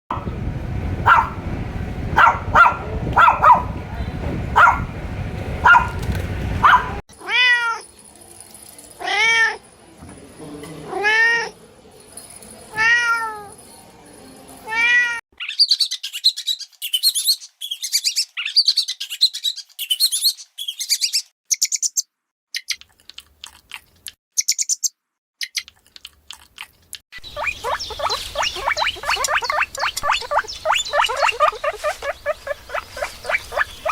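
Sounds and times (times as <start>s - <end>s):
cat meowing: 7.2s - 7.8s, 12.7s - 13.5s, 14.7s - 15.2s
rapid high-pitched chirping: 27.2s - 33.9s.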